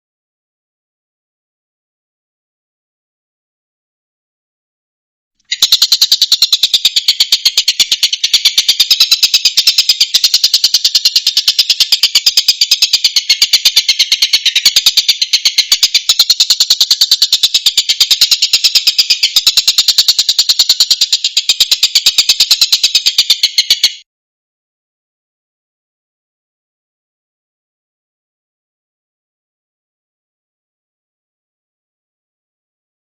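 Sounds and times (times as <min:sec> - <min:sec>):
kingfisher calling: 0:05.5 - 0:24.0.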